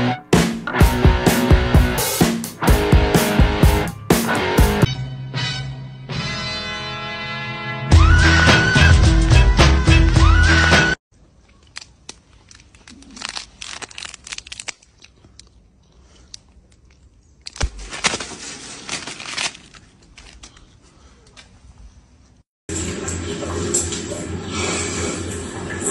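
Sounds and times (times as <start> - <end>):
plastic packet crinkling: 11.5 - 15.6, 16.8 - 20.6.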